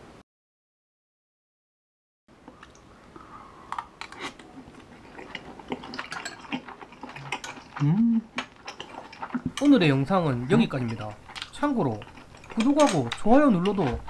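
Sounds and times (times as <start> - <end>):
wet chewing mouth noises: 2.5 - 14.0
person humming: 7.8 - 8.3.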